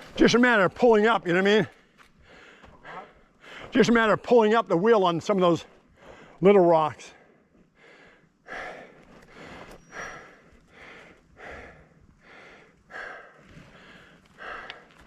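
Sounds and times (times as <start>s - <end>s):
person breathing hard: 2.2s - 3.8s, 5.9s - 6.4s, 7.1s - 15.0s.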